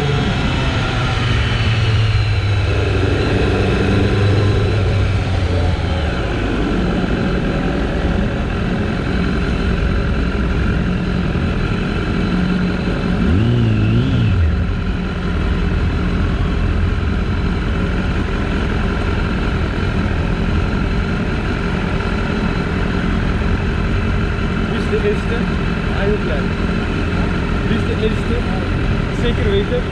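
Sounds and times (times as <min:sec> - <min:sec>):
motorcycle engine revving: 0:00.0 - 0:29.9
motorcycle engine running: 0:00.0 - 0:29.9.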